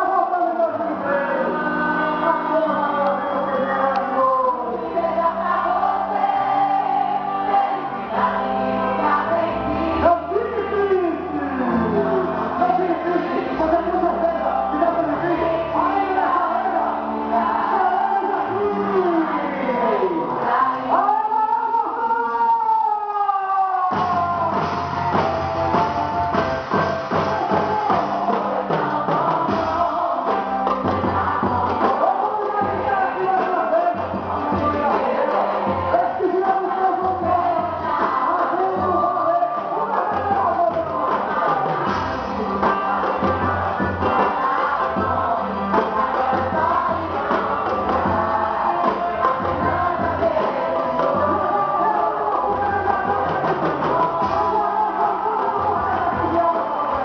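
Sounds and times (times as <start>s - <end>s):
live band music: 0.0s - 57.0s
person singing: 0.0s - 57.0s
drum kit and bass beat: 23.9s - 57.0s.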